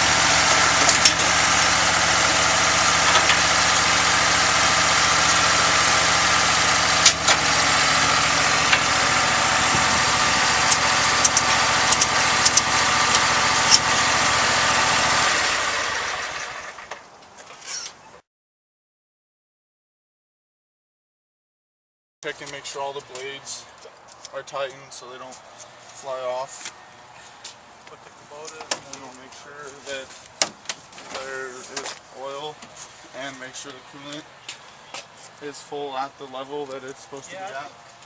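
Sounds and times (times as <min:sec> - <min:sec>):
lawn mower engine idling: 0:00.0 - 0:17.0.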